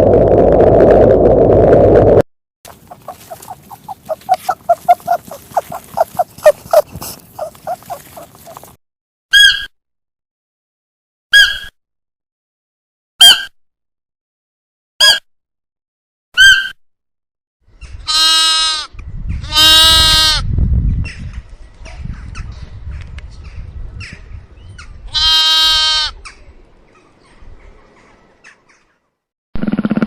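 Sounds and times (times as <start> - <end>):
low rumbling noise: 0.0 - 2.2
farm animal bleating: 2.7 - 8.7, 18.0 - 20.5, 25.1 - 26.2.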